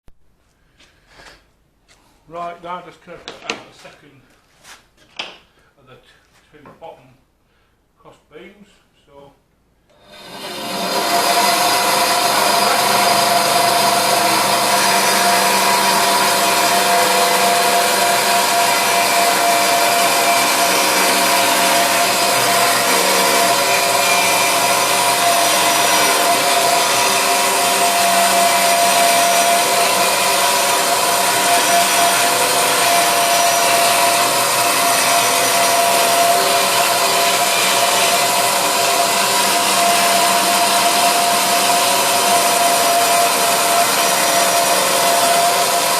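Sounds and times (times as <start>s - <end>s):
electric power saw cutting: 9.9s - 45.9s.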